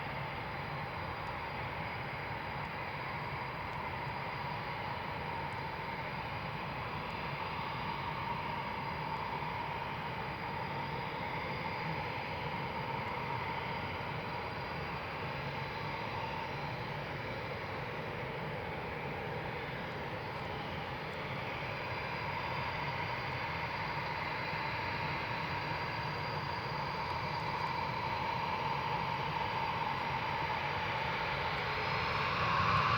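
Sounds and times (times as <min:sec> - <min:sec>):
jet engines whining: 0:27.0 - 0:32.9.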